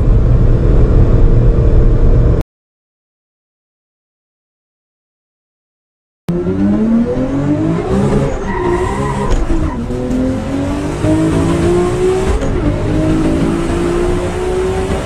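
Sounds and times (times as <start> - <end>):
car engine accelerating hard: 0.0 - 2.4, 6.3 - 15.0.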